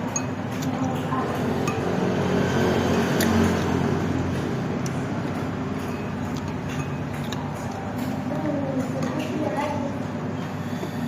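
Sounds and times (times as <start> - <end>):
vehicle engine passing by: 1.4 - 5.6.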